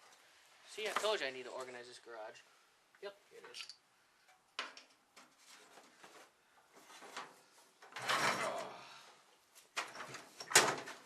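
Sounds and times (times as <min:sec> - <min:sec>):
objects clunking: 0:04.6 - 0:08.8.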